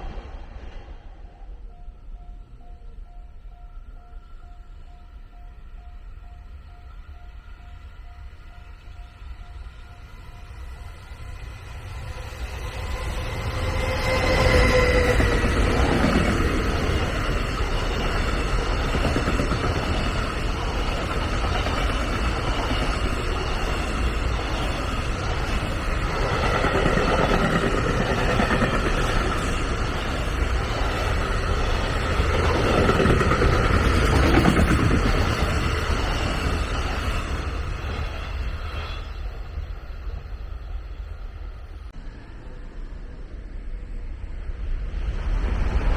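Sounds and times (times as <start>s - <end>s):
train wheels rumbling on rail: 0.0s - 45.9s.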